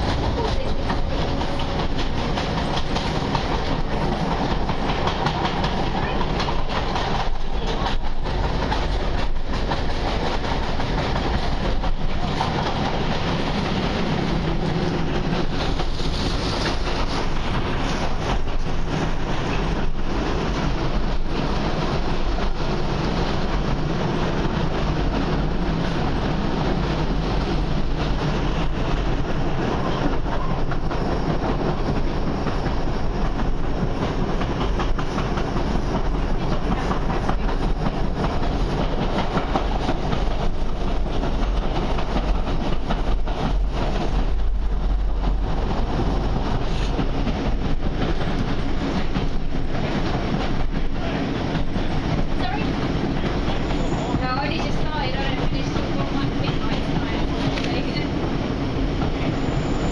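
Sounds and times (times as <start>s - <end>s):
wheels clicking over rail joints: 0.0s - 21.5s
train engine and wheels running: 0.0s - 59.9s.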